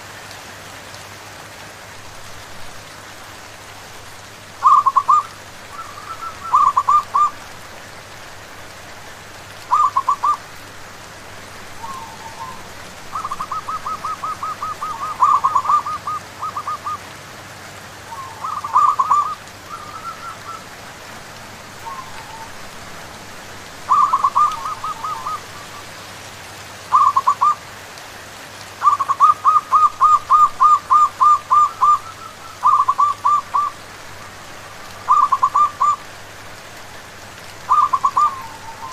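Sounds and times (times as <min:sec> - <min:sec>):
rain hiss: 0:00.0 - 0:38.9
doves cooing in staccato notes: 0:04.6 - 0:07.4, 0:09.6 - 0:10.4, 0:11.8 - 0:17.1, 0:18.1 - 0:20.8, 0:23.9 - 0:25.9, 0:26.9 - 0:27.6, 0:28.8 - 0:36.0, 0:37.6 - 0:38.9.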